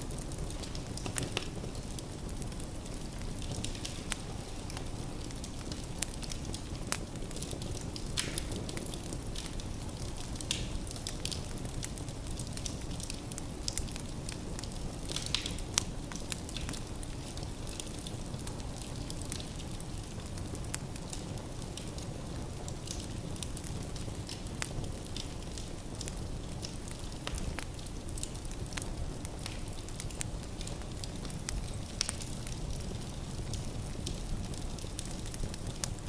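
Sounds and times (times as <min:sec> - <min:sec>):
burning logs crackling and popping: 0:00.0 - 0:36.0
low rumble of fire: 0:00.0 - 0:36.0.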